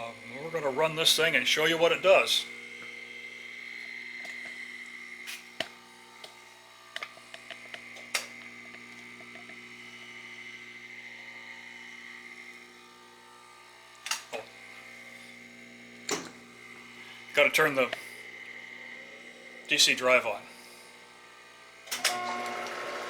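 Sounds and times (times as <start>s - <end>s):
electrical hum: 0.0s - 23.0s
tools clicking and knocking: 16.1s - 16.4s.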